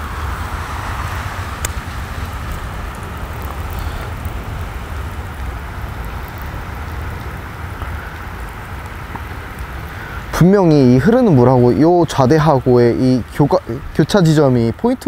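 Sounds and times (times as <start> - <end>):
low rumble: 0.0 - 11.7
rain falling on water: 0.0 - 15.0.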